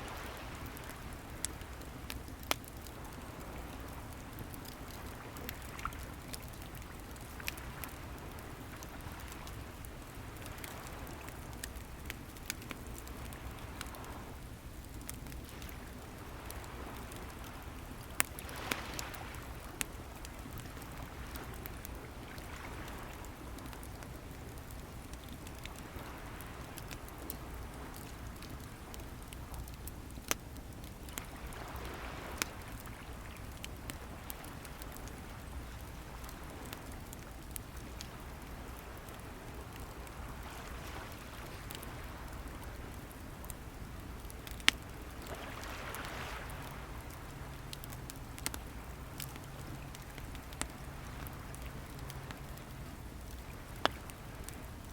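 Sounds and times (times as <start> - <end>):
wood bonfire crackling: 0.0 - 54.9
waves washing in: 16.3 - 19.6, 45.1 - 47.4.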